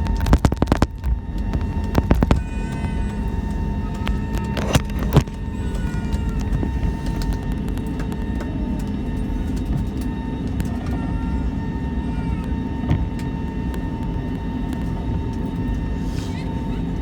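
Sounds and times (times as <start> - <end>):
aircraft cabin rumble: 0.0 - 17.0
constant high hum: 0.0 - 17.0.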